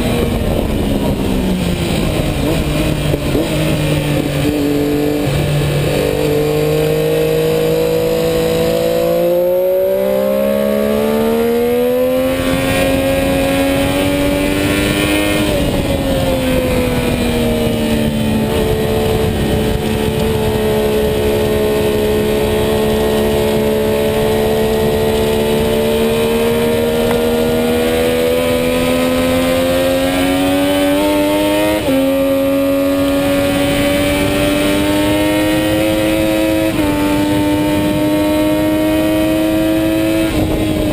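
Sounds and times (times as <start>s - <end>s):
motorcycle engine revving: 0.0s - 40.9s
wind rushing: 0.0s - 40.9s.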